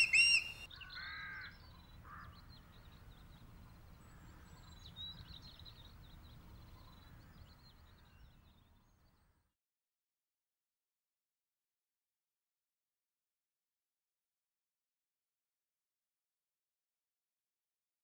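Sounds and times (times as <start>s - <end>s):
crow cawing: 0.0s - 1.5s
faint high bird chirps: 0.0s - 2.6s.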